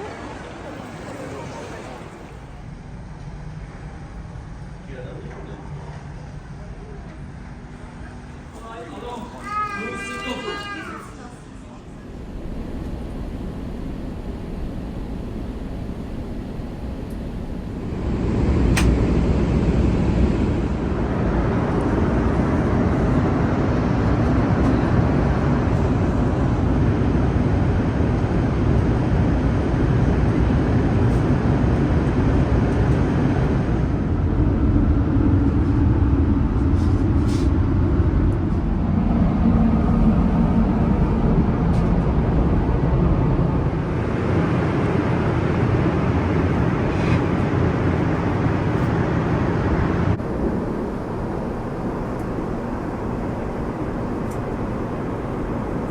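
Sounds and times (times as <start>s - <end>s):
vehicle rumble from inside: 12.0s - 26.5s, 30.8s - 51.1s.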